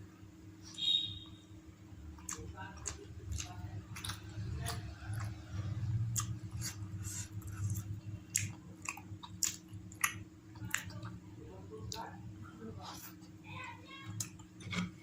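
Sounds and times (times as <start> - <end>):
steady low hum: 0.0 - 15.0
chewing food: 2.0 - 11.2.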